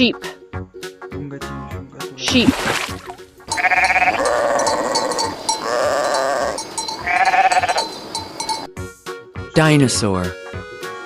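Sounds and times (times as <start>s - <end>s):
sheep bleating: 3.5s - 8.0s.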